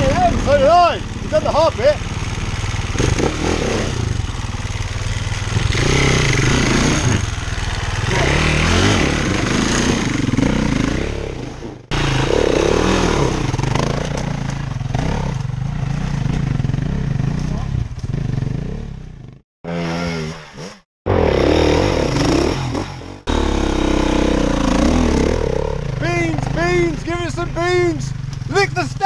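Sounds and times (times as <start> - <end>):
dirt bike engine revving: 0.0 - 29.0.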